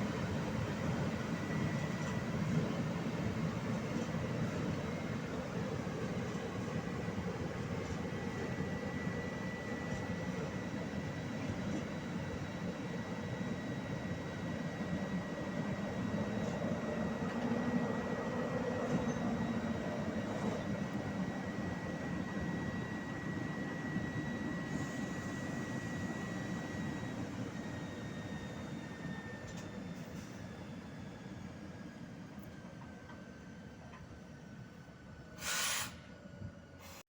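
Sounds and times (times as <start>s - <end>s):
train rumbling: 15.2s - 26.0s.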